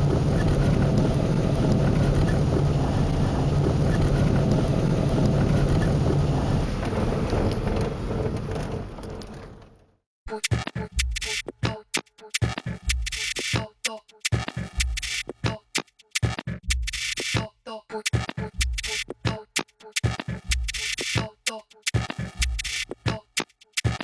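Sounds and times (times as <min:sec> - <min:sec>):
road noise: 0:00.0 - 0:09.9
vehicle engine: 0:00.0 - 0:10.0.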